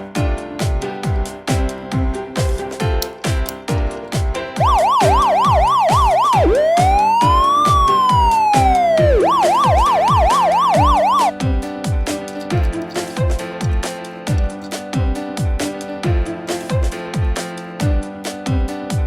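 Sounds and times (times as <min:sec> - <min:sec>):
upbeat music with drum beat: 0:00.2 - 0:19.0
emergency siren: 0:04.6 - 0:11.3.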